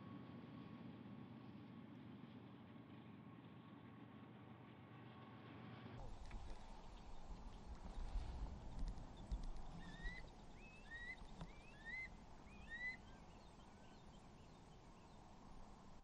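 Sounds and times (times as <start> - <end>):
bird whistling short notes: 9.8 - 13.1.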